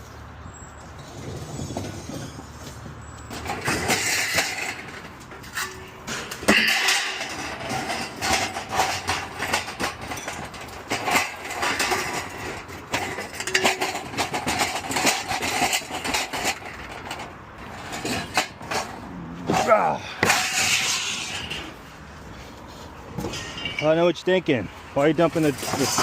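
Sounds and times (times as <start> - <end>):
scrap metal clanking into trailer: 1.0 - 26.0.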